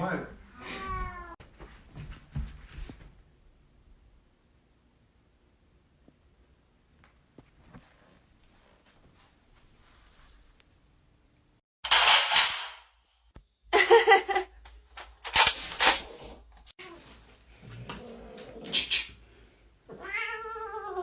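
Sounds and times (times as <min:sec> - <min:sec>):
cat vocalising: 0:19.9 - 0:21.0.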